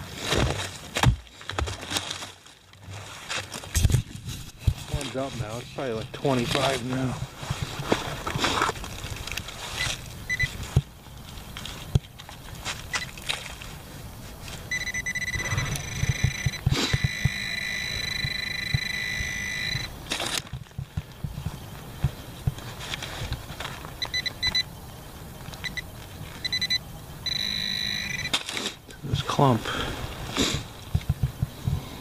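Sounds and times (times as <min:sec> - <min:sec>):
short electronic beeps: 0:10.3 - 0:10.5, 0:14.7 - 0:20.0, 0:24.0 - 0:24.7, 0:25.6 - 0:28.4
metal detector high electronic tone: 0:10.3 - 0:10.6, 0:14.7 - 0:20.0, 0:24.0 - 0:24.7, 0:25.6 - 0:28.4
digging in soil: 0:28.2 - 0:30.9.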